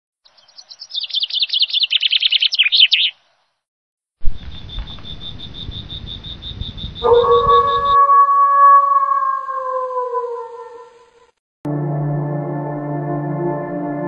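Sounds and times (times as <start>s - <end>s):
bird trilling: 0.3s - 3.2s, 4.4s - 8.9s
low rumble with high-pitched pulsing: 4.2s - 8.0s.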